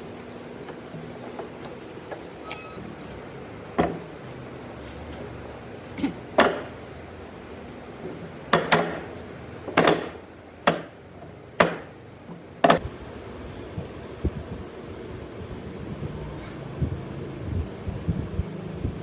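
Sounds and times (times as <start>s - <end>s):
hand tool striking wood: 6.4s - 6.8s, 8.5s - 11.0s, 11.6s - 11.9s, 12.6s - 12.8s.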